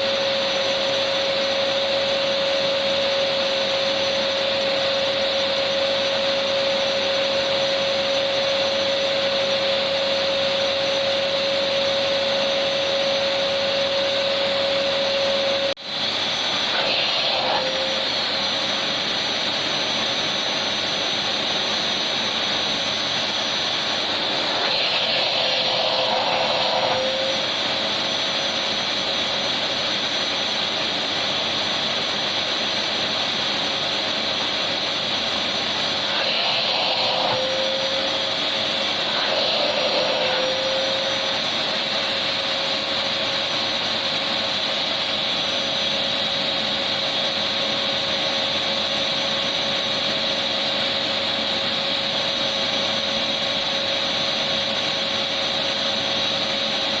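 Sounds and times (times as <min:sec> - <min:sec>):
vacuum cleaner running: 0:00.0 - 0:57.0
vacuum cleaner whine: 0:00.0 - 0:57.0.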